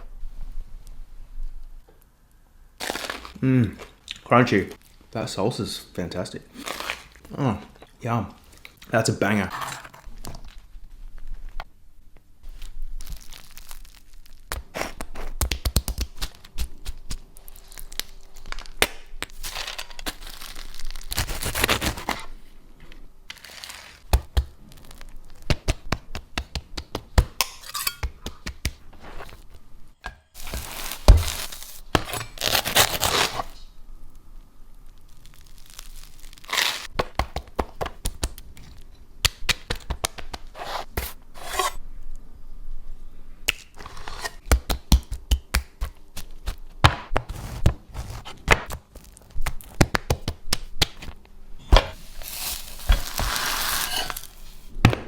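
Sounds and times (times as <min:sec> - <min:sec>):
sandwich crackling and tearing: 0:02.8 - 0:03.4, 0:06.5 - 0:07.3, 0:12.5 - 0:22.4, 0:23.3 - 0:27.3, 0:30.4 - 0:33.6, 0:34.8 - 0:41.2, 0:45.3 - 0:51.2, 0:51.9 - 0:54.7
knocks and scrapes: 0:40.5 - 0:41.8, 0:51.6 - 0:54.7.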